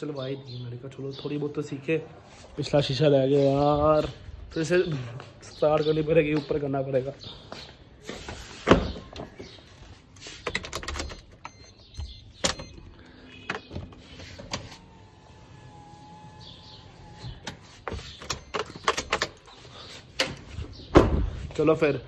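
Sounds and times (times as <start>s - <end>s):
electric window motor whining: 13.9s - 17.8s.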